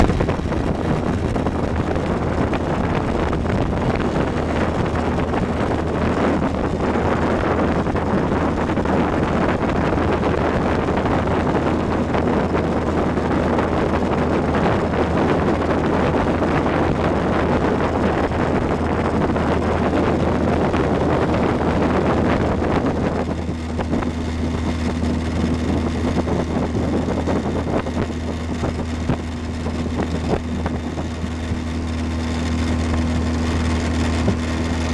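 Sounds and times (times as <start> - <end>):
motorboat engine running: 0.0 - 34.9
rushing wind noise: 0.0 - 34.9.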